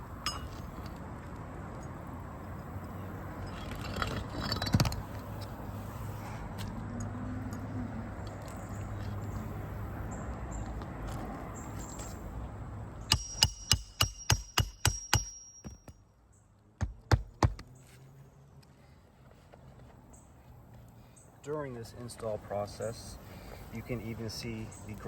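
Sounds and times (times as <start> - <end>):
low background noise: 0.0 - 25.0
hammer striking roofing nails: 13.1 - 16.0, 16.8 - 17.7.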